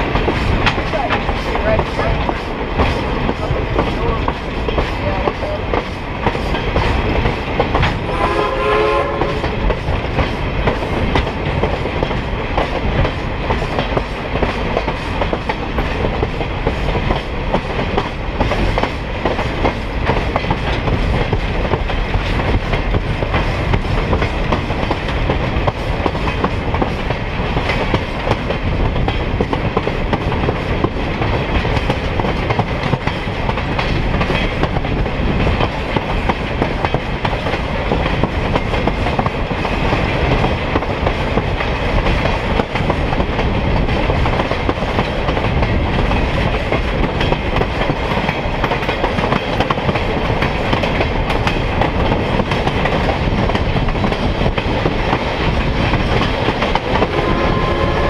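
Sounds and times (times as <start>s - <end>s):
train rolling along rails: 0.0s - 58.0s
locomotive horn blast: 8.0s - 9.5s, 57.0s - 58.0s.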